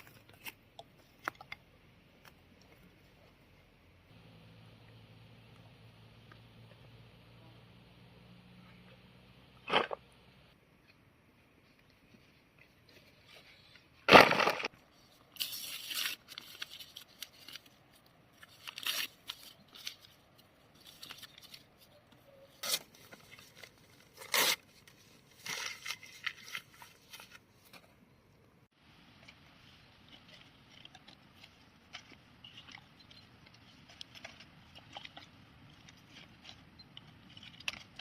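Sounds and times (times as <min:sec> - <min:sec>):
tearing and rustling: 0:15.3 - 0:27.8.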